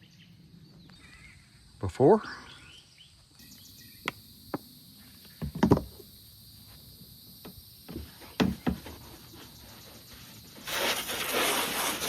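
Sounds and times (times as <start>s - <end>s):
sharp knocks: 7.9s - 9.0s.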